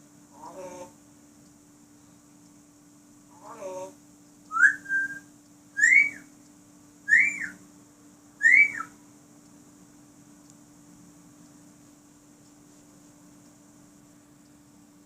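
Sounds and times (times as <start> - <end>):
parrot whistling: 4.5 - 6.3, 7.1 - 7.6, 8.4 - 9.0.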